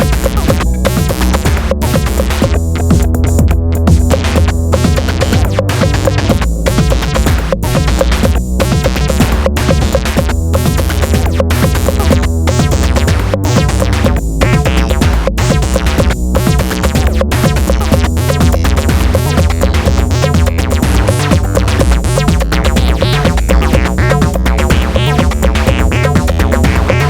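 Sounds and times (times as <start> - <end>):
acid synthesizer sequence: 0.0 - 27.0
drum-machine beat: 0.0 - 27.0
granular textures: 0.0 - 27.0
heavy steady bass: 0.0 - 27.0.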